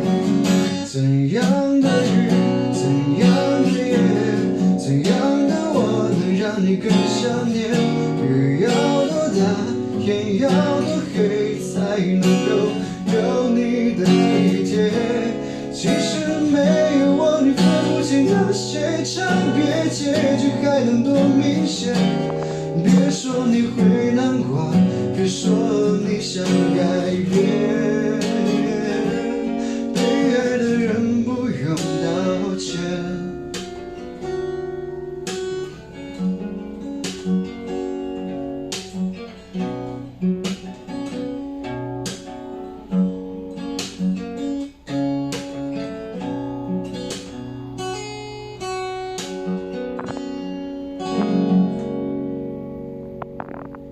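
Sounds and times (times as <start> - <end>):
acoustic guitar plucking: 0.0 - 53.9
person singing: 0.6 - 33.9.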